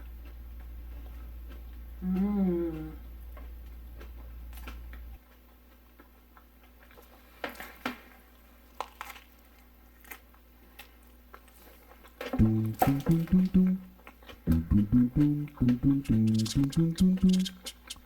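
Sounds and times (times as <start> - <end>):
chewing and mouth sounds: 0.0 - 7.4, 8.7 - 18.0
low hum: 12.4 - 18.0
plucked guitar music: 12.4 - 18.0.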